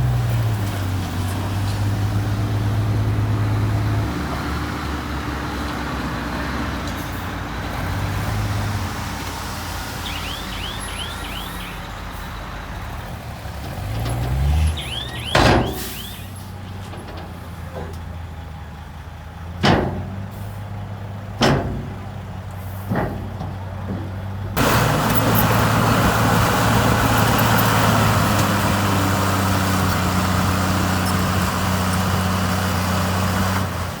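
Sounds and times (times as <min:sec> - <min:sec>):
heavy diesel machinery droning: 0:00.0 - 0:34.0
high squeaks: 0:14.1 - 0:16.5.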